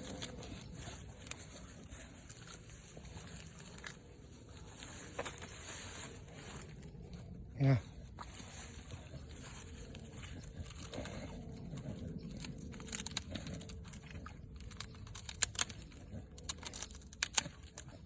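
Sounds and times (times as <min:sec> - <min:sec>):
dog chewing on a stick: 0:00.0 - 0:18.0
wood cracking and crunching: 0:08.5 - 0:18.0.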